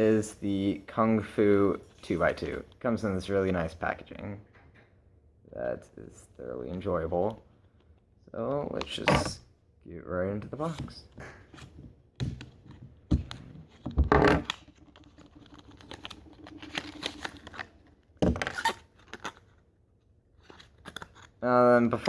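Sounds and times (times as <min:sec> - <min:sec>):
packaging rubbing and rustling: 0:14.4 - 0:19.6.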